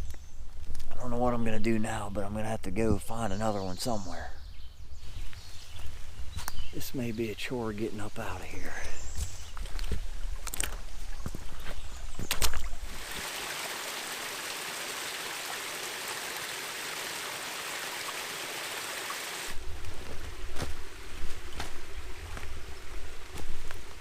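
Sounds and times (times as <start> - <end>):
stream water rushing: 12.9 - 19.6.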